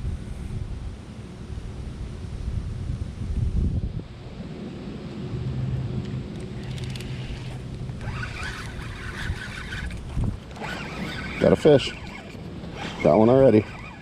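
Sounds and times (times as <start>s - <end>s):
low steady hum: 0.0s - 14.0s
wind buffeting microphone: 0.0s - 14.0s
rapid rattling: 6.4s - 14.0s.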